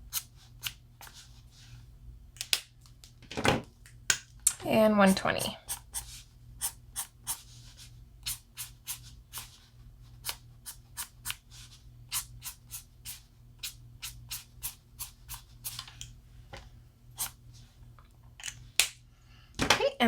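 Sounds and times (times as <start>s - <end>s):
marker scratching on paper: 5.1s - 9.6s.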